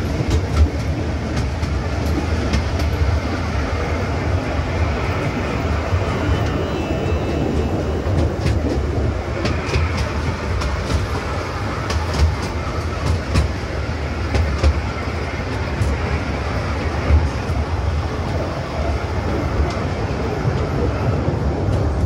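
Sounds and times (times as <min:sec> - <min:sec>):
train wheels rumbling on rail: 0:00.0 - 0:22.0
clicks and clacks: 0:00.1 - 0:03.1, 0:08.1 - 0:16.2.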